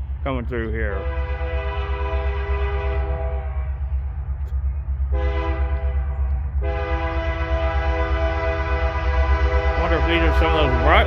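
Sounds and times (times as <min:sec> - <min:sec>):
steady low rumble: 0:00.0 - 0:11.0
locomotive air horn blasts: 0:00.9 - 0:03.8, 0:05.1 - 0:11.0.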